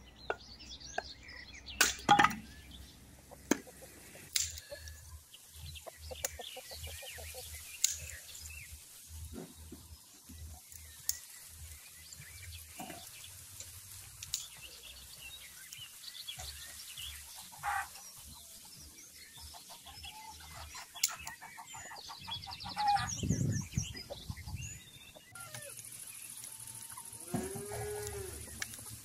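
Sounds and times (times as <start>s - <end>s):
chickens clucking: 0.0s - 8.3s, 15.9s - 29.0s
small birds chirping: 0.0s - 29.0s
low animal call: 26.5s - 28.9s.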